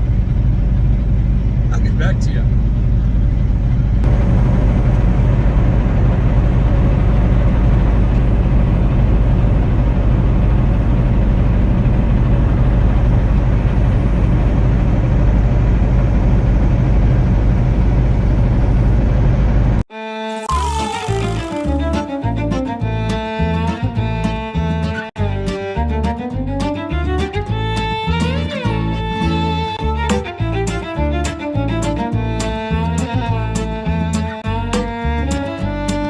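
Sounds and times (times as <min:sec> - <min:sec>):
engine and road rumble: 0:00.0 - 0:36.0
string music: 0:19.9 - 0:36.0.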